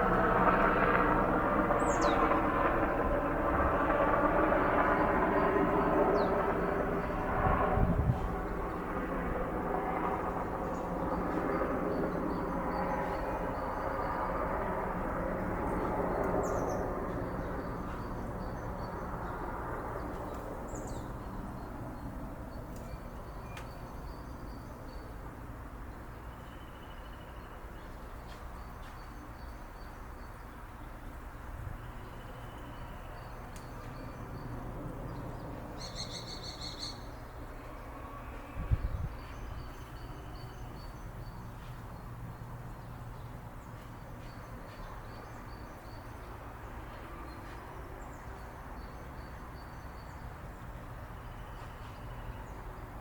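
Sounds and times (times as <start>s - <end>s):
small birds chirping: 1.7s - 2.5s, 15.6s - 25.2s, 31.8s - 37.5s.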